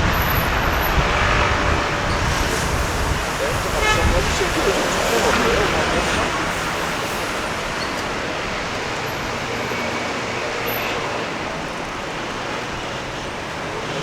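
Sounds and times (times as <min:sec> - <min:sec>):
passing vehicles and road noise: 0:00.0 - 0:14.0.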